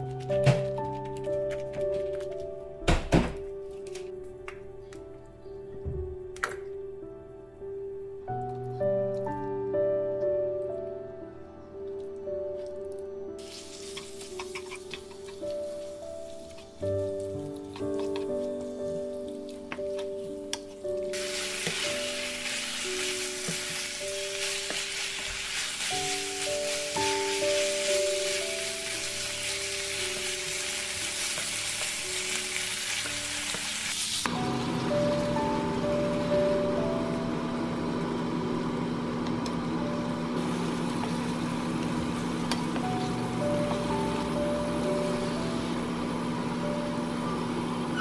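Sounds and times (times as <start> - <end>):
pork and onions sizzling: 13.4 - 48.0
wooden spatula scraping: 13.8 - 16.8.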